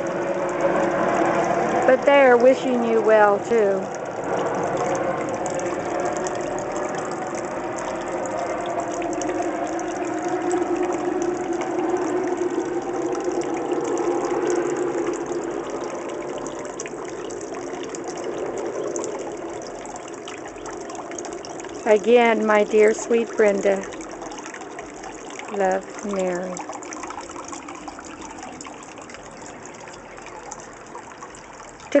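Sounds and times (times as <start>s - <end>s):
helicopter drone: 0.0s - 20.4s
fountain splashing: 0.0s - 32.0s.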